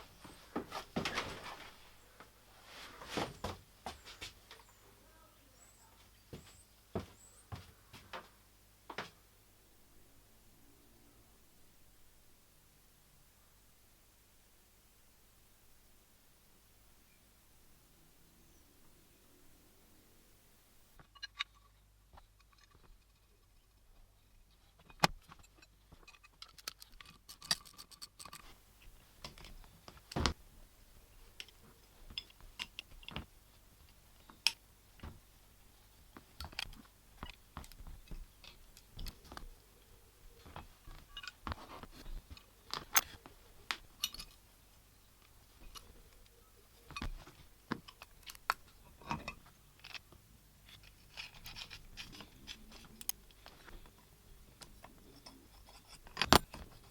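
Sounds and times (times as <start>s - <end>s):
small metal parts clinking: 25.2s - 28.5s, 43.9s - 44.4s.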